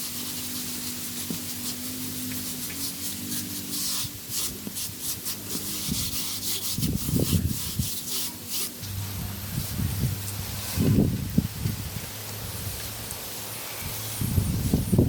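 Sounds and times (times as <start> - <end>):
rough scraping strokes: 0.0 - 11.3.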